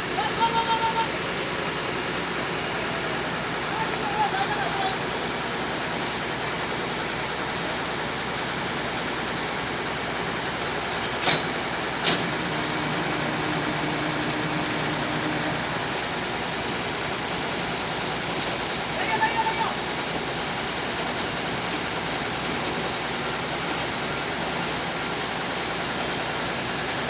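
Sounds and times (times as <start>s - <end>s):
road vehicle noise: 10.2s - 18.7s.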